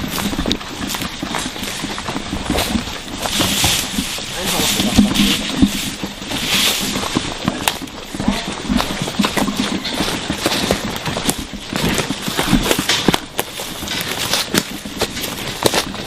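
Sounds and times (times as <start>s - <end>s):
steady hiss: 2.6s - 7.4s.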